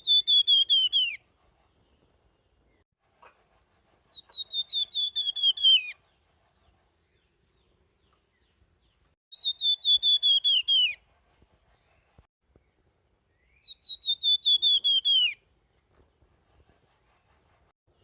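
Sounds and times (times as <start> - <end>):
songbird whistling phrases: 0.0 - 1.2, 4.2 - 6.0, 9.3 - 11.0, 13.5 - 15.4.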